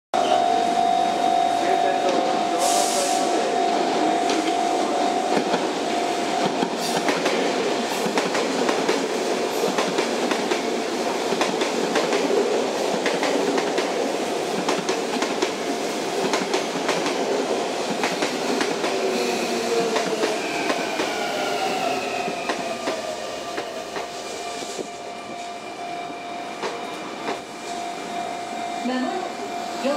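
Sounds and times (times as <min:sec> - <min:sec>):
level crossing warning bell: 0:00.2 - 0:02.6, 0:03.2 - 0:06.7, 0:22.8 - 0:29.9
train wheels clicking over rail joints: 0:06.4 - 0:21.2.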